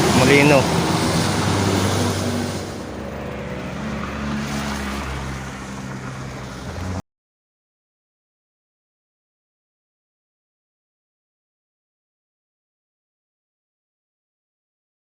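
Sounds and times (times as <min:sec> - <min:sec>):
vehicle engine humming: 0:00.0 - 0:07.0
wind-like rush: 0:00.0 - 0:07.0.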